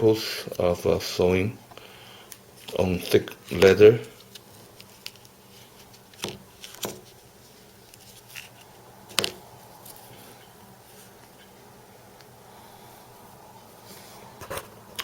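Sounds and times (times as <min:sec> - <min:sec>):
faint steady hum: 0:00.0 - 0:15.0
leather rustling: 0:02.6 - 0:12.4.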